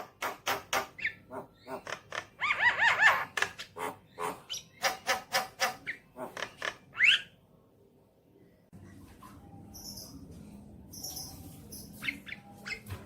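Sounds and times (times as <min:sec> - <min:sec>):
bird harsh rasping chatter: 0:00.9 - 0:06.9.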